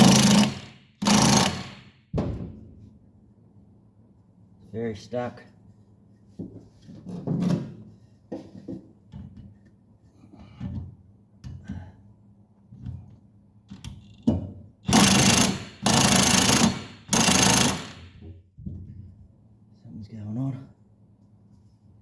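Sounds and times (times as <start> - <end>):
impact wrench hammering: 0.0 - 2.3, 14.9 - 18.2.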